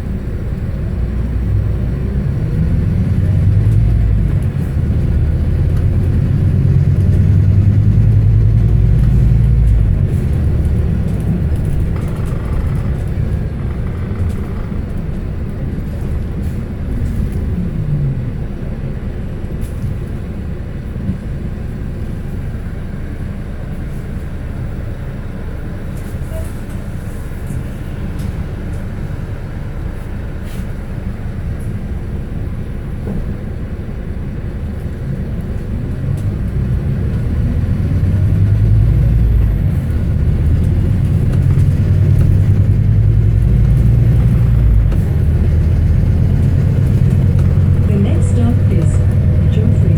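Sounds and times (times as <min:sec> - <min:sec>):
bus diesel engine rumbling: 0:00.0 - 0:49.9
road noise: 0:00.0 - 0:49.9.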